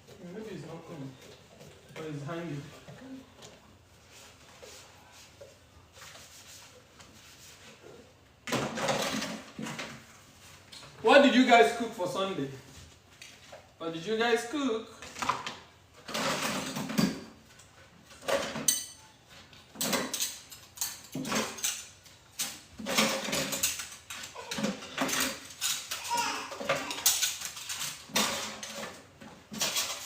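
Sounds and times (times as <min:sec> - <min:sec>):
utensils and dishes clattering: 0:08.5 - 0:10.0, 0:15.1 - 0:30.0.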